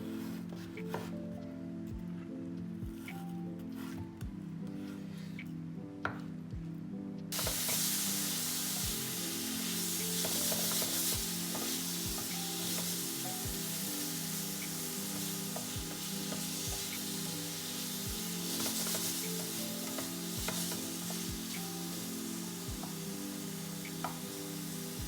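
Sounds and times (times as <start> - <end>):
food sizzling in a pan: 7.3 - 25.0
background music with a beat: 8.7 - 9.3, 9.9 - 13.8, 14.6 - 17.3, 18.1 - 21.9, 22.7 - 23.0.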